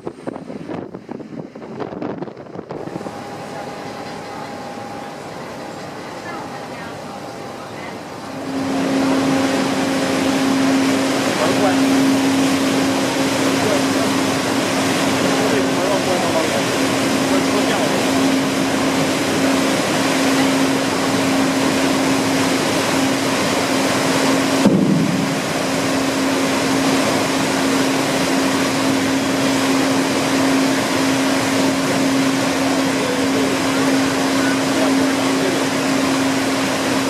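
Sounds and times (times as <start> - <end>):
low machinery hum: 0.0 - 37.0
steady rushing noise: 0.0 - 37.0
short bump: 24.6 - 26.2.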